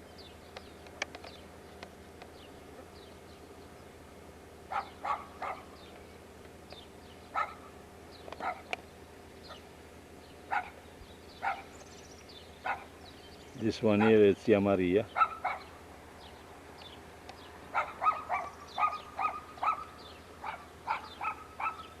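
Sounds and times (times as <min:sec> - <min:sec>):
dog barking: 0:04.7 - 0:05.7, 0:07.3 - 0:07.7, 0:08.4 - 0:08.7, 0:10.5 - 0:10.8, 0:11.4 - 0:11.7, 0:12.6 - 0:12.9, 0:14.0 - 0:14.3, 0:15.1 - 0:15.7, 0:17.7 - 0:22.0.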